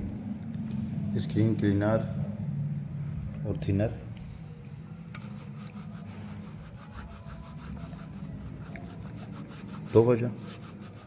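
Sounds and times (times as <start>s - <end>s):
steady low hum: 0.0s - 11.0s
scrubbing glass: 5.0s - 11.0s.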